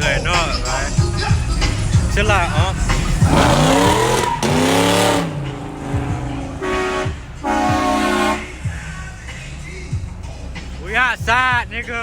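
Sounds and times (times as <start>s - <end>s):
car engine revving: 0.1s - 11.2s
car horn honking: 3.3s - 8.9s.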